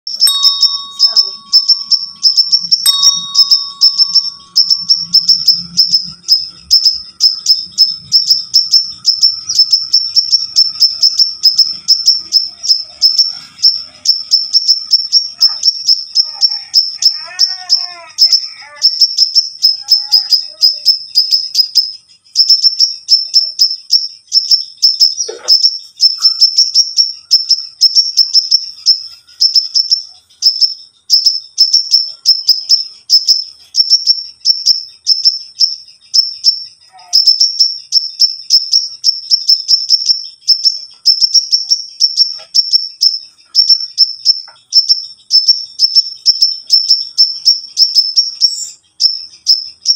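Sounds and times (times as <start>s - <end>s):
sunbird singing high notes: 0.1s - 13.8s.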